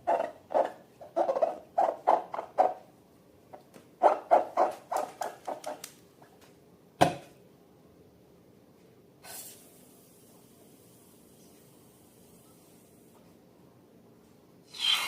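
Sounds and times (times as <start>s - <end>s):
brief hiss: 9.2s - 9.9s.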